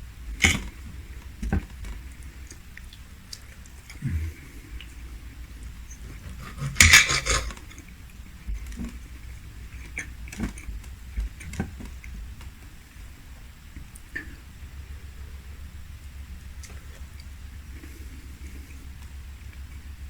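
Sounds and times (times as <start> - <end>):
soft clicks and knocks of eating: 0.4 - 4.0
tableware clattering: 6.4 - 7.6.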